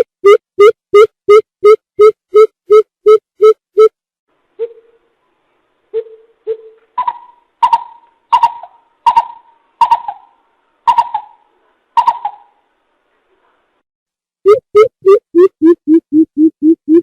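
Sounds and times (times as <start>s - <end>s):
coucal hooting: 6.0s - 12.6s.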